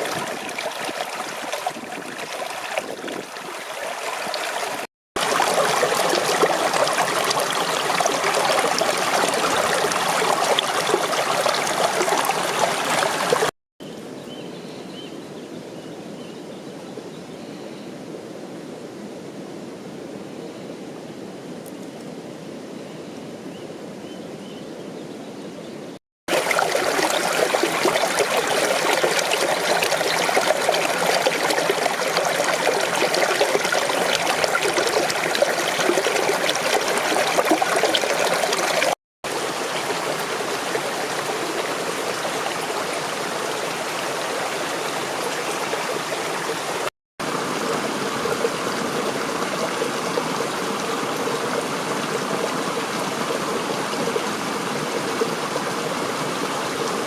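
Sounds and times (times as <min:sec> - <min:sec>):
mountain stream rushing: 0:00.0 - 0:13.5, 0:26.3 - 0:57.0.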